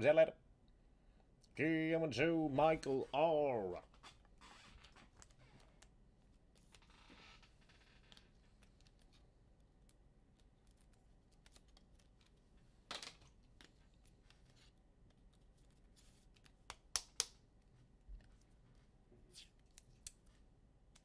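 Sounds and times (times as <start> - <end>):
trading cards being handled: 3.9 - 7.0, 7.6 - 21.0.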